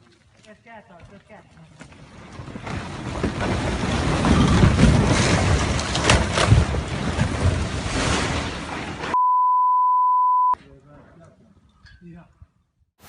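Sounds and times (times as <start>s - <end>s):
rockslide rumbling and crashing: 1.9s - 9.2s
high-pitched censor bleep: 9.2s - 10.6s.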